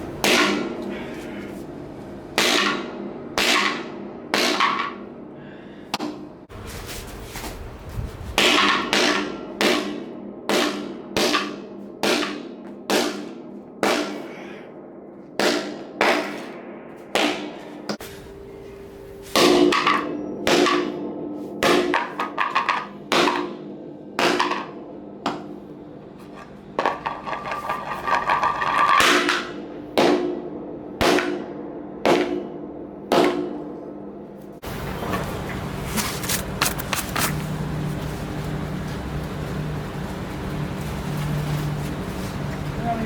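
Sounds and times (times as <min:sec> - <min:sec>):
wooden mallet striking hard: 0:19.4 - 0:21.0.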